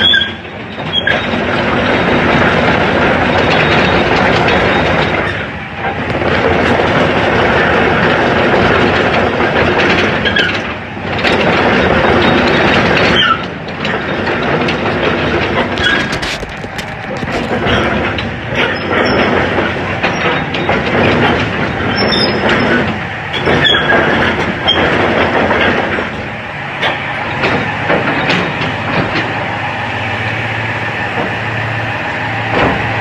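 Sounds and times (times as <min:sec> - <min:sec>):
short high squeaks: 0:00.0 - 0:01.4, 0:15.8 - 0:16.4
excavator engine humming: 0:00.0 - 0:33.0
metal clanks and knocks: 0:00.0 - 0:33.0.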